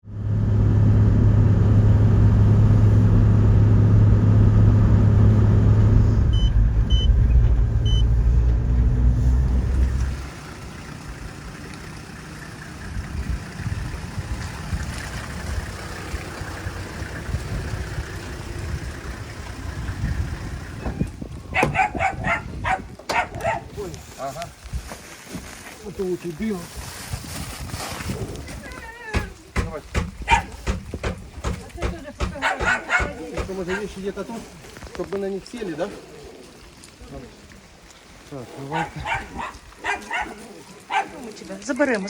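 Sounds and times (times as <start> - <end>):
vehicle engine and road drone: 0.0 - 42.0
short electronic beeps: 6.3 - 8.1.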